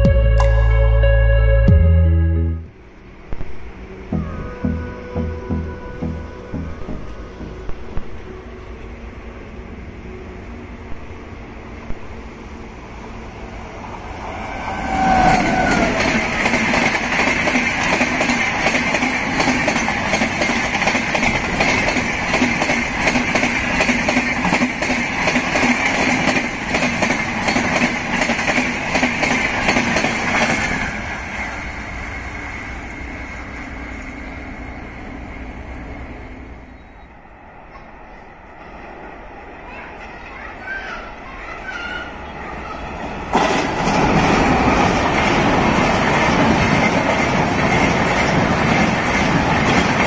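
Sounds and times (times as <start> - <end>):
train passing rumble: 0.0 - 50.0
train wheels clicking on rail joints: 14.3 - 35.8, 43.1 - 50.0.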